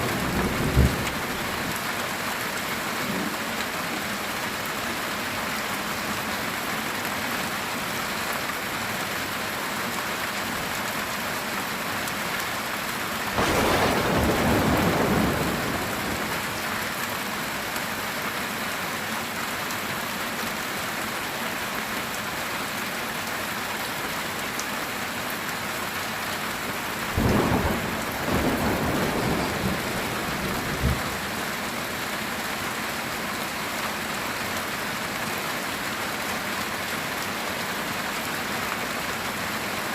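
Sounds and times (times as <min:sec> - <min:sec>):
thunder rolling: 0:00.0 - 0:01.7, 0:13.4 - 0:16.6, 0:27.2 - 0:31.4
heavy rain on a tin roof: 0:00.0 - 0:39.9.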